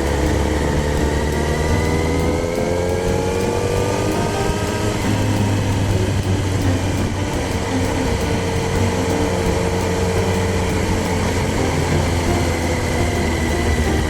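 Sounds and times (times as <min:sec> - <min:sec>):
motorcycle engine running: 0:00.0 - 0:14.0
wind noise: 0:00.0 - 0:14.0.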